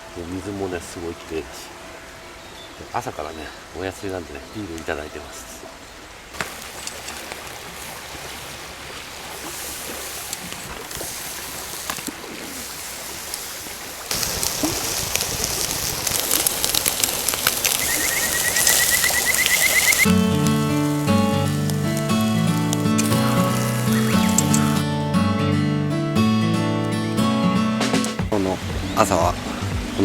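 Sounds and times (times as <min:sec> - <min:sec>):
river water rushing over stones: 0:00.0 - 0:24.8, 0:28.2 - 0:30.0
bird calls: 0:16.3 - 0:20.1, 0:23.6 - 0:24.8
bird chirping trill: 0:17.7 - 0:20.1, 0:22.4 - 0:24.8.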